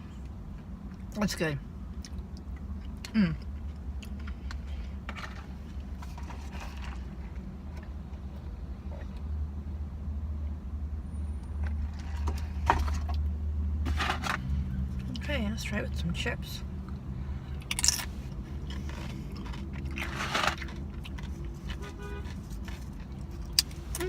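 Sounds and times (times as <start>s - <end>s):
chewing food: 1.9s - 4.9s, 17.6s - 23.9s.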